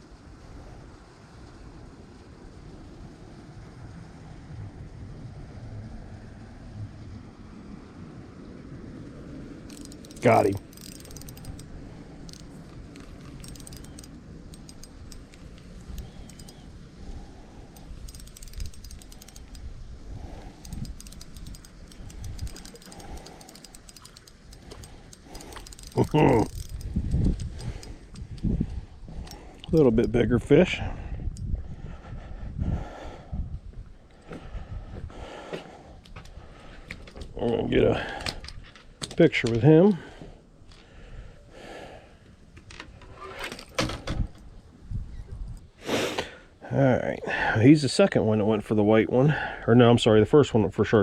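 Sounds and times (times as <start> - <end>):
wind buffeting microphone: 0.0 - 41.8, 43.7 - 45.8
fishing reel clicking: 9.7 - 30.2.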